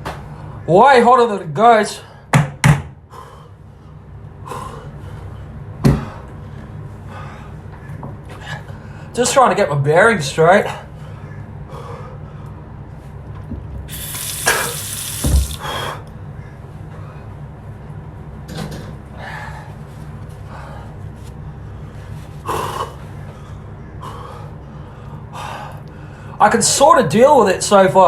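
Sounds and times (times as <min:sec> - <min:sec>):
man breathing hard: 0:03.0 - 0:07.7, 0:10.9 - 0:12.7, 0:15.5 - 0:16.1, 0:19.1 - 0:26.4
steady low hum: 0:03.0 - 0:09.4, 0:10.2 - 0:26.6.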